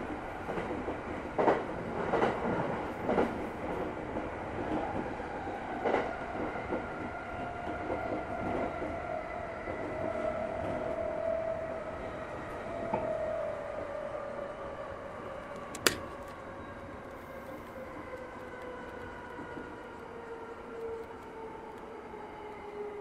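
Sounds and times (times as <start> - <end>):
rumble of wheels on rail: 0.0 - 23.0.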